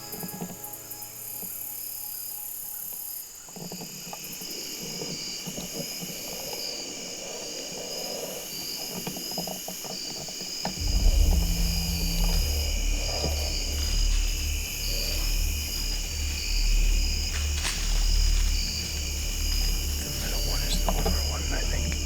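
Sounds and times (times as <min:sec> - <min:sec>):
insects trilling: 0:00.0 - 0:22.0
soft rustling with crackles: 0:03.4 - 0:22.0
loud deep sound: 0:10.8 - 0:22.0.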